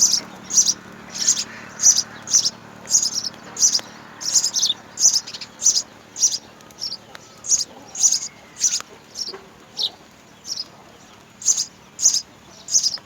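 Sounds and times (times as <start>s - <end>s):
sparrow chirping: 0.0s - 13.0s.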